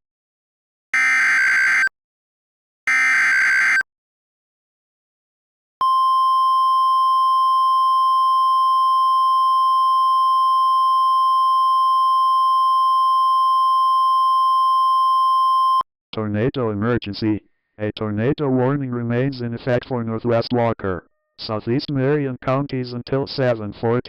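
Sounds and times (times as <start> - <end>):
steady alarm tone: 1.0 - 1.9, 2.9 - 3.8.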